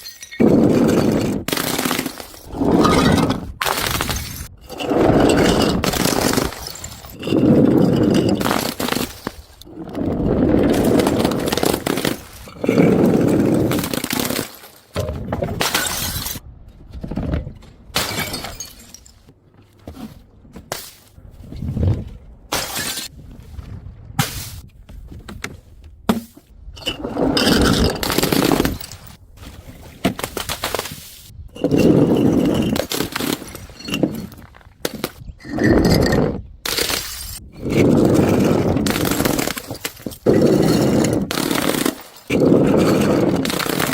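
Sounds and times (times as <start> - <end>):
glass bottles smashing: 0.0 - 9.6, 15.6 - 16.4, 18.0 - 19.3, 27.4 - 29.2, 38.8 - 43.9
glass cracks and clinks: 0.0 - 9.7, 18.0 - 19.3, 36.7 - 37.4, 38.8 - 43.9.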